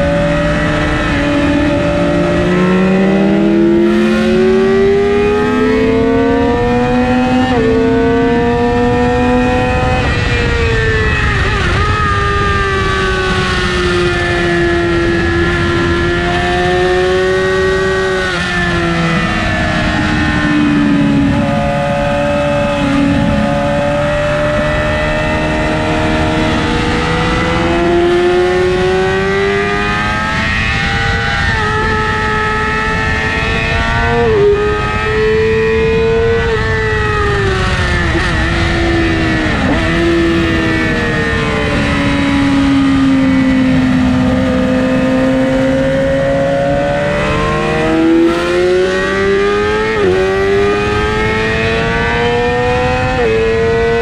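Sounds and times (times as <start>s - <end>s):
motorcycle engine revving: 0.0s - 54.0s
wind noise: 0.0s - 54.0s.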